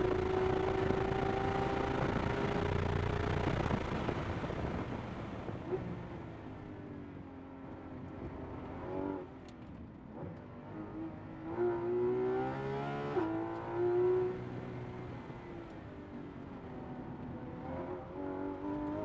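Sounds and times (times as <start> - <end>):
car engine revving and downshifting: 0.0 - 4.8, 8.1 - 9.3, 10.1 - 19.0.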